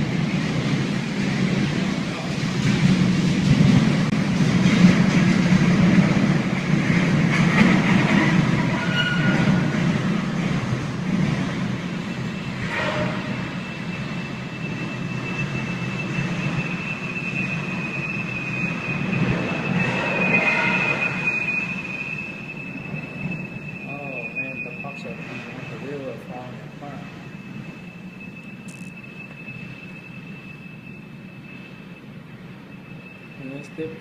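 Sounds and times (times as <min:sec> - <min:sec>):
freight cars rumbling past: 0:00.0 - 0:34.0
high-pitched wheel squeal: 0:07.3 - 0:10.3, 0:11.8 - 0:34.0.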